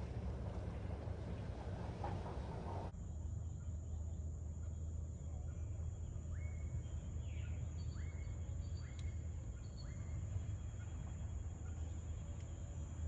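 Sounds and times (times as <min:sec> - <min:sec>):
low steady rumble: 0:00.0 - 0:02.9.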